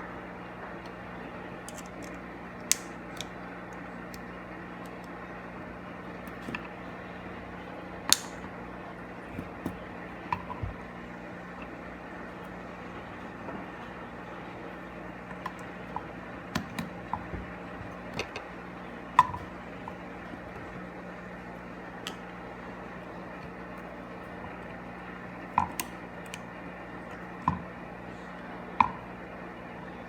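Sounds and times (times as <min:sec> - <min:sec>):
steady low hum: 0:00.0 - 0:30.0
clicks and taps of small tools: 0:01.7 - 0:04.2.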